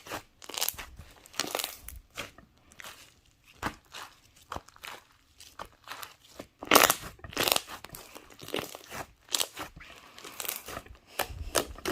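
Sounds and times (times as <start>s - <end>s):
crinkling and crunching material: 0.0s - 11.9s.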